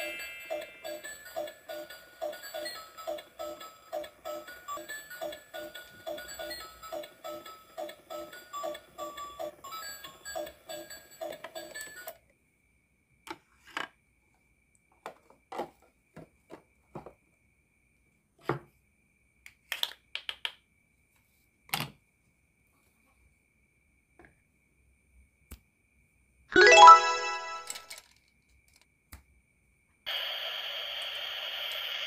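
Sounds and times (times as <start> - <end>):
toy electronic beeping tune: 0.0 - 7.5, 26.6 - 27.8
plastic toys clicking and knocking: 19.5 - 20.6, 27.7 - 28.9.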